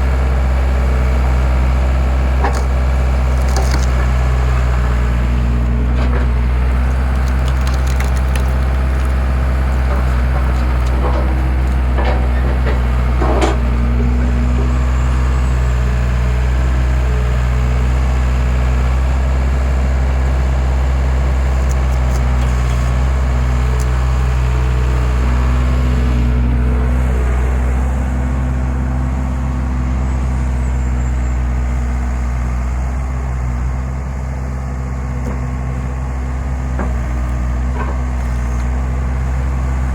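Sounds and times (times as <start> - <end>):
engine running steadily: 0.0 - 39.9
wood cracking and snapping: 2.4 - 13.6, 21.4 - 24.0.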